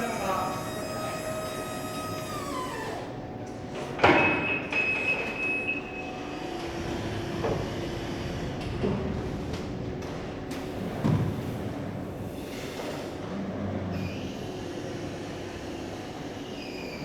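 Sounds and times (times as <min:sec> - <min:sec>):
electric motor whine: 0:00.0 - 0:03.2.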